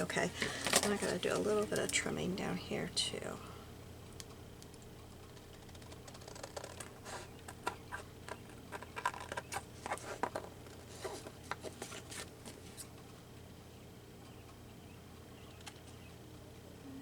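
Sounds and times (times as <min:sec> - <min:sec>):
paper rustling: 0:00.4 - 0:01.9, 0:05.8 - 0:12.9.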